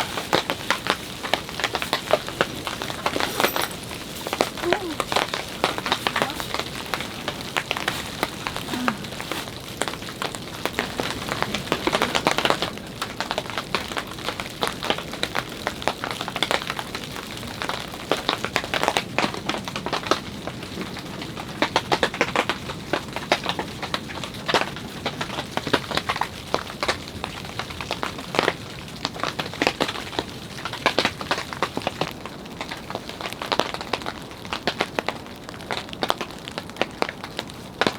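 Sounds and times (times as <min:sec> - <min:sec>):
steady rain falling: 0:00.0 - 0:37.9.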